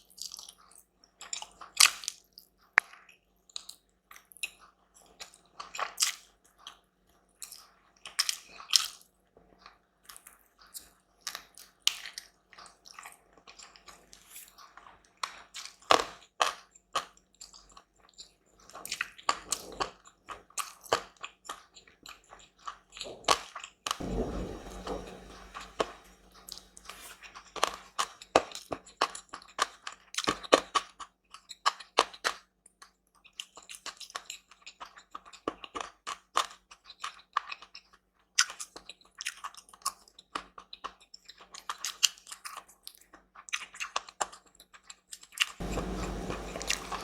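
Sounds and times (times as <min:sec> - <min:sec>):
food being chewed: 0:33.3 - 0:45.5.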